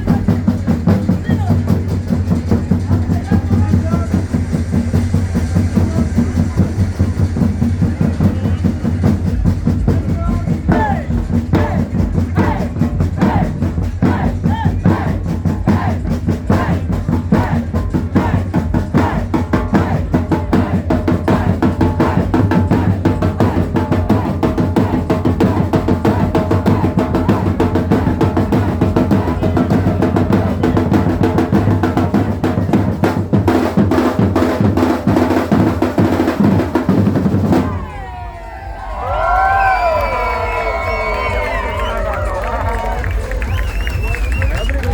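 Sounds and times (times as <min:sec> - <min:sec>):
deep bass: 0:00.0 - 0:33.4
fast drumming: 0:00.0 - 0:38.4.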